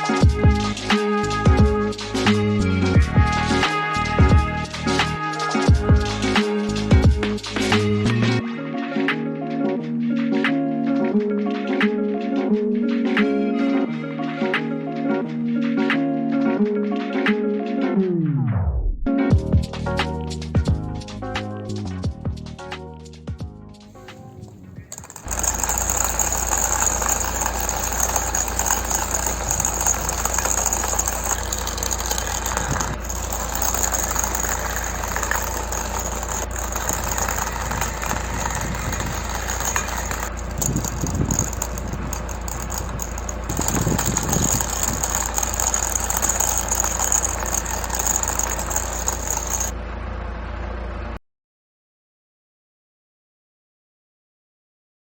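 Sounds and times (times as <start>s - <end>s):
can body rattling: 23.9s - 49.7s
small motor running: 24.0s - 49.7s.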